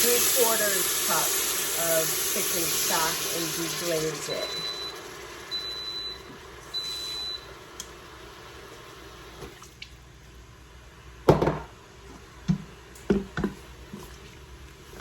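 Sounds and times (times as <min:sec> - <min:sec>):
high beep: 0:04.4 - 0:05.0.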